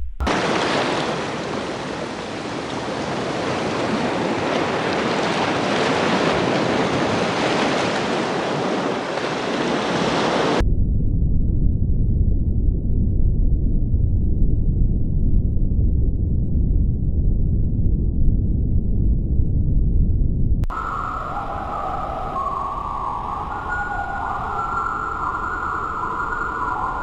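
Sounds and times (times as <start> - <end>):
low rumble: 0.0 - 0.5, 10.6 - 27.0.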